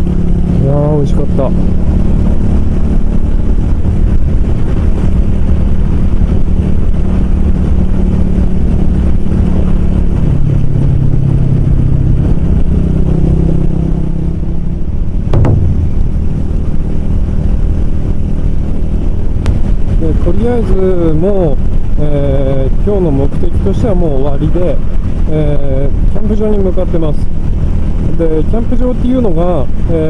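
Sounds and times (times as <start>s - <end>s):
motorcycle engine running: 15.4s - 17.2s.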